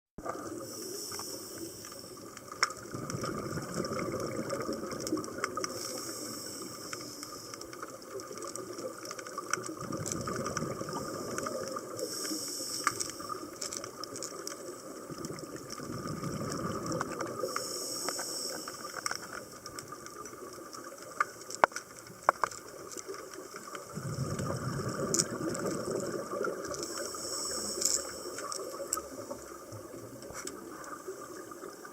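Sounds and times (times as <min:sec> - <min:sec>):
exhaled bubbles gushing: 0:00.2 - 0:00.8, 0:02.1 - 0:06.1, 0:07.7 - 0:12.2, 0:13.2 - 0:17.6, 0:22.2 - 0:31.9
hiss of inhaled air: 0:00.5 - 0:02.2, 0:05.7 - 0:07.6, 0:11.0 - 0:13.5, 0:17.4 - 0:19.4, 0:26.8 - 0:29.0.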